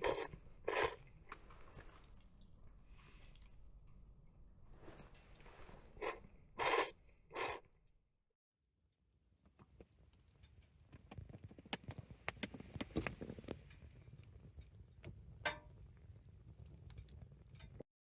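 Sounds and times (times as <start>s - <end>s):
campfire crackling and popping: 9.2s - 17.8s.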